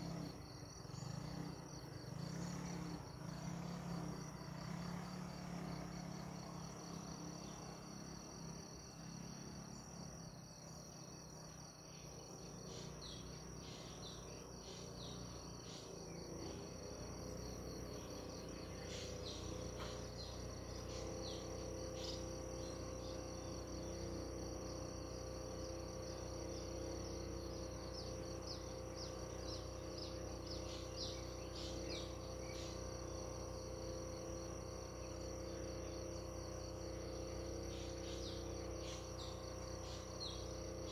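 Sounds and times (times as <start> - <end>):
insects trilling: 0.0 - 40.9
birds chirping: 12.0 - 24.2, 26.5 - 33.2, 37.2 - 40.9.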